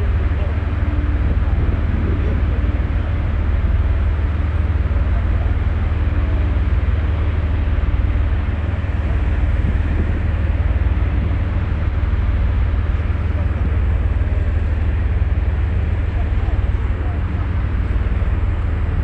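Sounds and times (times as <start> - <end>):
ferry engine rumble: 0.0 - 19.0
rushing noise: 8.0 - 19.0.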